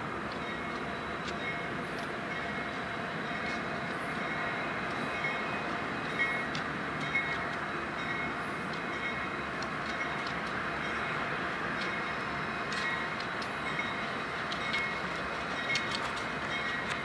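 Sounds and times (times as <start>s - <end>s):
freight train rumbling: 0.0s - 17.0s.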